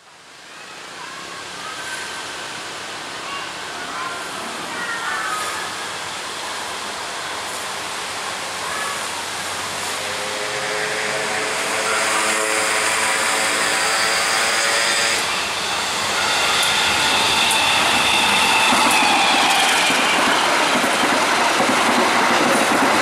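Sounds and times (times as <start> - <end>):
train rumble and rail noise: 0.0 - 23.0
locomotive horn chord: 10.1 - 13.7.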